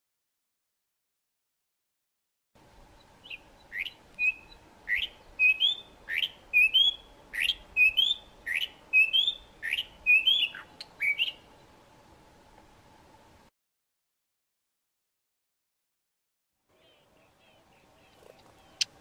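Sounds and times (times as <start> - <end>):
bird chirps and whistles: 3.2 - 11.4.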